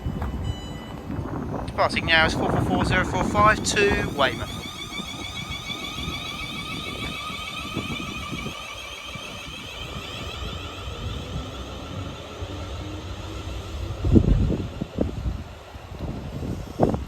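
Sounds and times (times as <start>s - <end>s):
electric train motors whining: 0.0s - 17.0s
low rumble: 9.4s - 16.9s.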